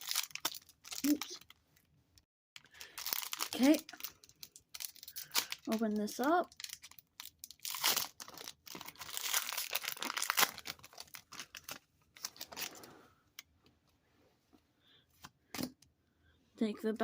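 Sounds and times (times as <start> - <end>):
foil wrapper crinkling: 0.0 - 1.5, 2.6 - 12.8.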